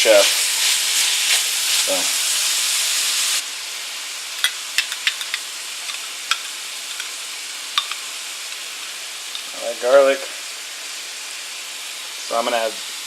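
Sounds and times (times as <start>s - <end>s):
food sizzling in a skillet: 0.0s - 13.0s
sharp pops of frying fat: 4.4s - 8.7s.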